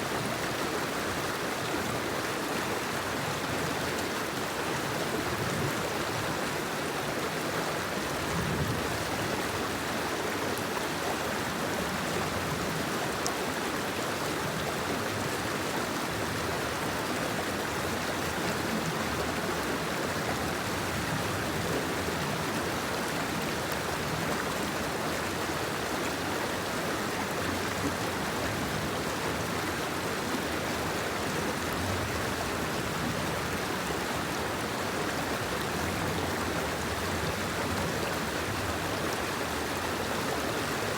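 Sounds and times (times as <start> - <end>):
rain falling steadily: 0.0 - 40.9.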